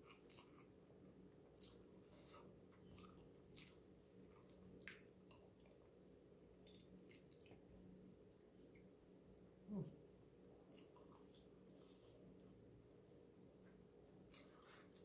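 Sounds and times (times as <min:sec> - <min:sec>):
wet chewing smacks and clicks: 0:00.0 - 0:00.7, 0:01.6 - 0:03.8, 0:04.4 - 0:05.8, 0:06.6 - 0:07.6, 0:10.7 - 0:11.5, 0:14.2 - 0:15.0.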